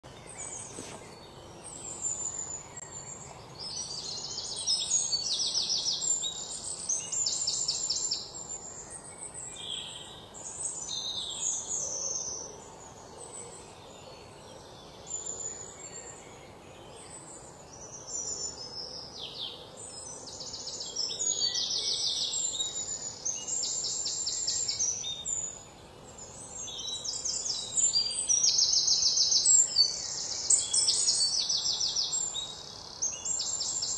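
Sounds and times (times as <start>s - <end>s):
faint background noise: 0.0s - 33.9s
birds singing trilled phrases: 0.1s - 13.1s, 13.7s - 33.9s.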